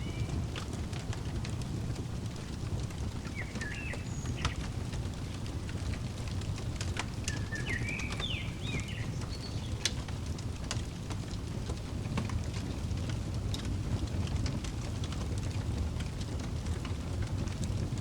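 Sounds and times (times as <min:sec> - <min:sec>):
small bird chirping: 0:00.0 - 0:00.4, 0:03.2 - 0:04.8, 0:07.3 - 0:09.9
wood fire crackling and popping: 0:00.0 - 0:18.0.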